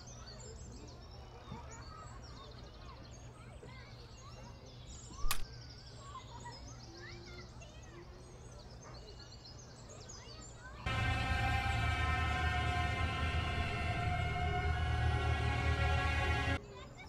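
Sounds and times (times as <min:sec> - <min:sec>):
low outdoor background rumble: 0:10.9 - 0:16.6
tense film music: 0:10.9 - 0:16.6.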